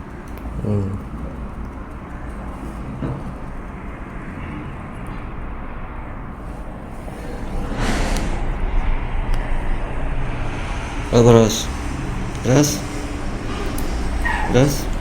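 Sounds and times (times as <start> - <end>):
low rumbling background noise: 0.0 - 15.0
rushing noise: 3.8 - 15.0.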